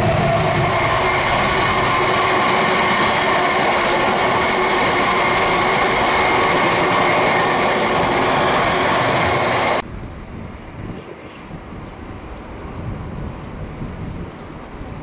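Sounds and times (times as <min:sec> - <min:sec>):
steel wheels rushing on rail: 0:00.0 - 0:09.8.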